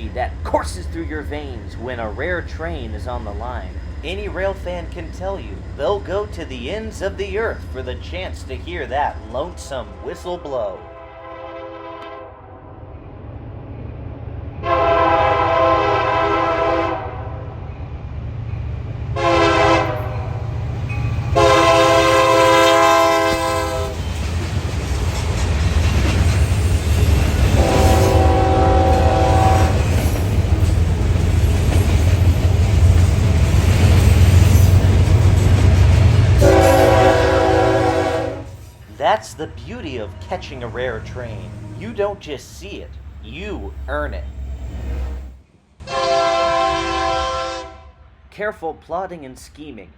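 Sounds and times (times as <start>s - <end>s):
low rumble of passing train: 0.0s - 48.5s
locomotive air horn blasts: 10.8s - 12.6s, 14.6s - 17.3s, 19.2s - 20.4s, 21.4s - 24.0s, 27.6s - 29.9s, 36.4s - 38.6s, 45.8s - 48.0s.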